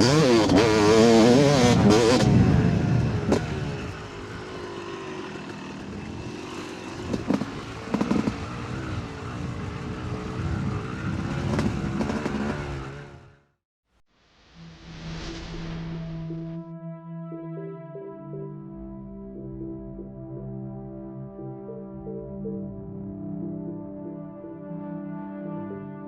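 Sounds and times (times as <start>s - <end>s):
dirt bike engine running: 0.0s - 13.4s.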